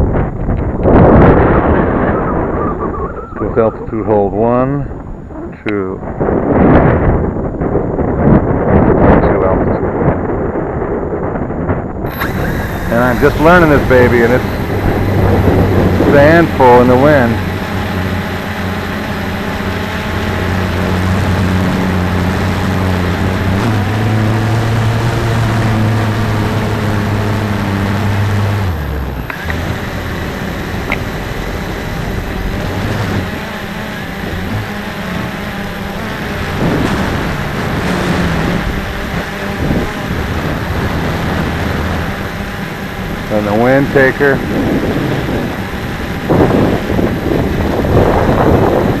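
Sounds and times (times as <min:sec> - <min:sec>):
quadcopter motors humming: 0:00.0 - 0:49.0
wind rushing: 0:00.0 - 0:49.0.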